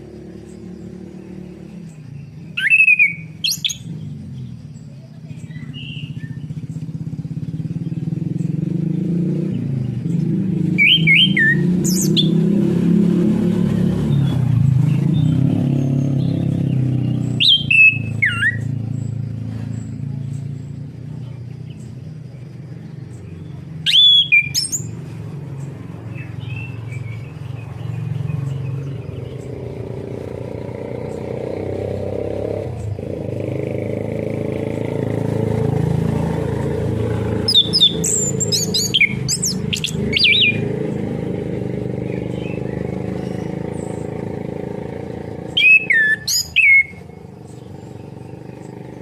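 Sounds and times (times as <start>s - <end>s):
thrush whistling: 0.0s - 4.6s, 9.6s - 19.3s, 23.7s - 25.3s, 26.1s - 49.0s
engine drone: 0.0s - 49.0s.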